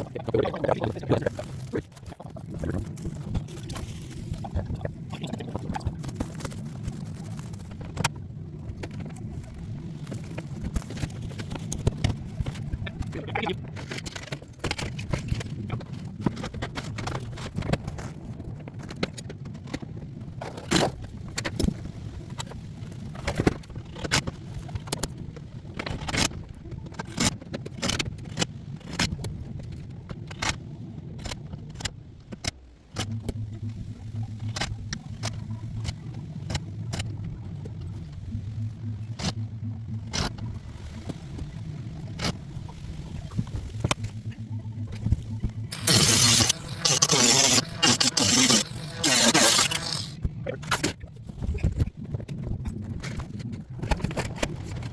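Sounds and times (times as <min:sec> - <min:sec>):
steady low hum: 0:28.6 - 0:54.9.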